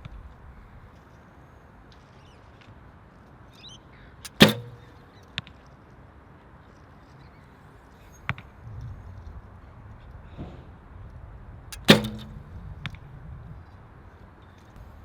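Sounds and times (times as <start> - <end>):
arrow knocking into target: 4.3 - 4.9, 11.8 - 12.5
bow string release: 4.3 - 4.9, 11.8 - 12.5
short click: 4.3 - 5.0, 11.8 - 12.4
wind noise: 8.4 - 14.2.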